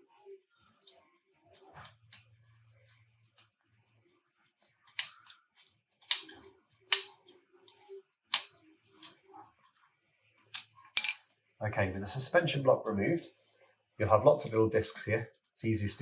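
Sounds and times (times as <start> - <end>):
metallic clicks and clinks: 10.6 - 11.3.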